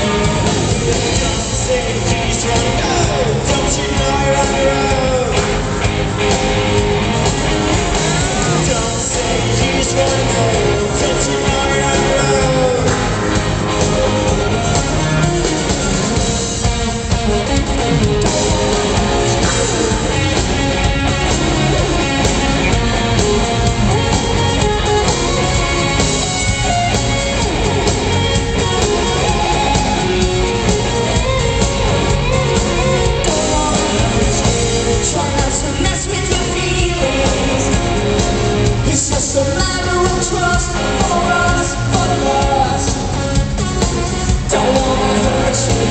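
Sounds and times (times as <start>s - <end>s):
drums: 0.0s - 45.9s
guitars: 0.0s - 45.9s
live rock band: 0.0s - 45.9s
woman singing: 33.2s - 37.8s, 38.8s - 42.9s.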